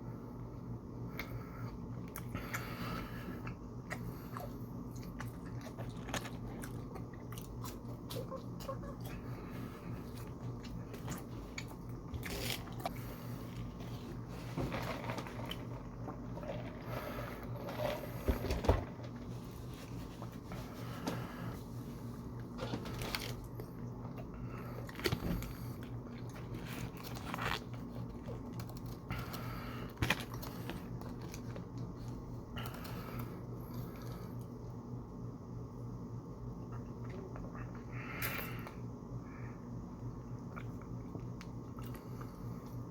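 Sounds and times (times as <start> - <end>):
crunchy food chewing: 3.4 - 18.4, 22.4 - 34.6.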